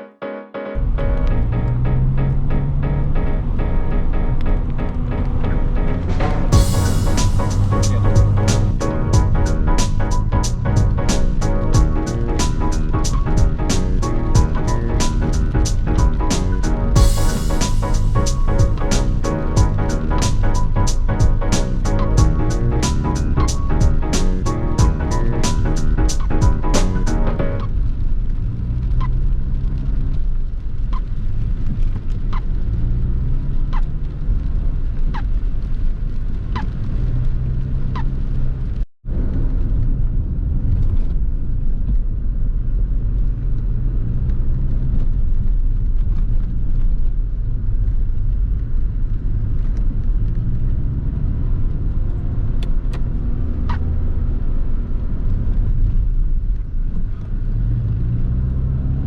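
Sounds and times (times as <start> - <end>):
road rumble: 0.8 - 30.8.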